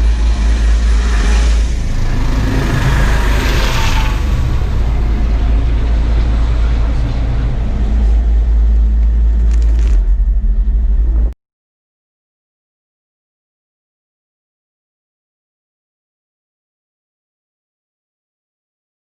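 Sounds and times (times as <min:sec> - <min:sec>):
helicopter rotor and engine drone: 0:00.0 - 0:11.3.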